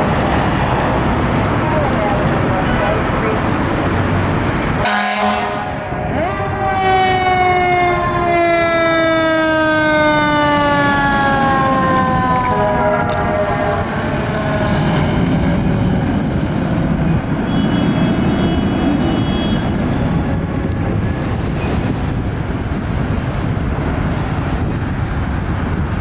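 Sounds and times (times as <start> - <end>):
heavy engine and road noise: 0.0 - 26.0
fire engine siren winding down: 4.8 - 16.0.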